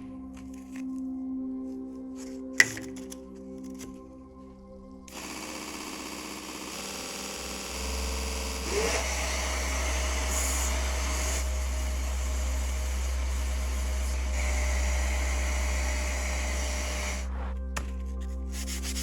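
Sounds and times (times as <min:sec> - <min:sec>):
machine low hum: 0:05.1 - 0:17.5.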